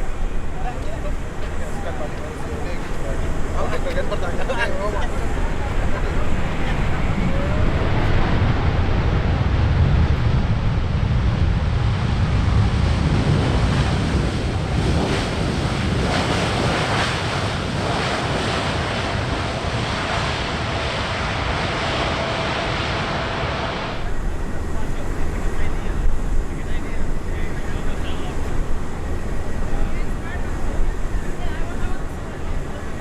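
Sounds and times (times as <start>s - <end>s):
faint steady whine: 0.0s - 9.2s, 23.9s - 33.0s
jet engine rumble: 0.0s - 33.0s
wind buffeting microphone: 0.0s - 33.0s.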